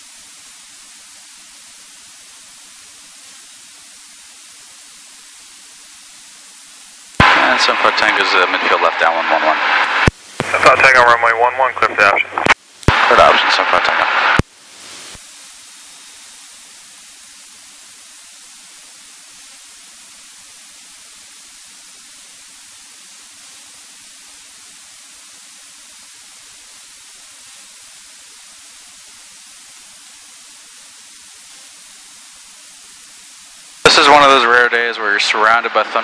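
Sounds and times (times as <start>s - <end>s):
faint steady hum: 0.0s - 36.0s
radio intercom hiss: 0.0s - 36.0s
tower radio transmission: 7.2s - 15.2s, 33.7s - 36.0s.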